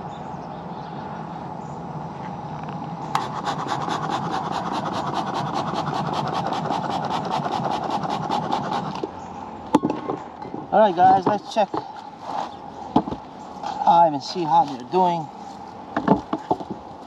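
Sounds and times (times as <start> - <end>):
steady low hum: 0.0 - 17.0
fast even scraping: 3.2 - 9.0.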